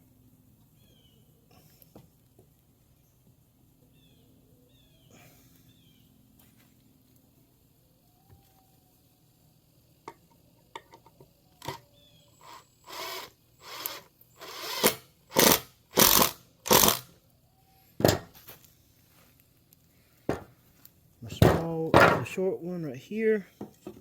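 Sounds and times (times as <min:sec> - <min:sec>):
power drill driving screw into wood: 0:12.4 - 0:17.1.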